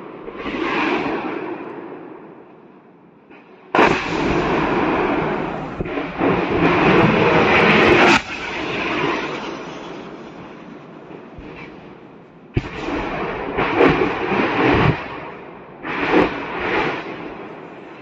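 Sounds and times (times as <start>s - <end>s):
sharp explosion blast: 3.7s - 17.7s
explosion cracks: 3.7s - 18.0s
rumbling explosion roar: 3.7s - 18.0s.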